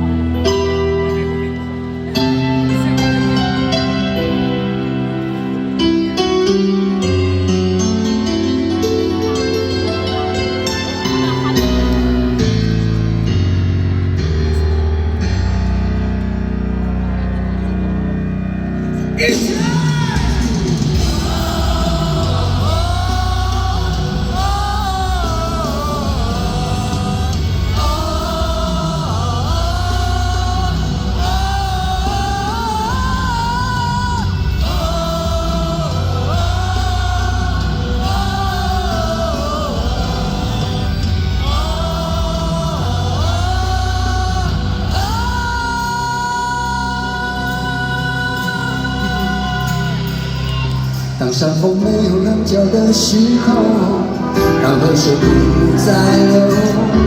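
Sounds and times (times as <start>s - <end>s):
live rock band: 0.0s - 57.0s
person singing: 19.1s - 57.0s.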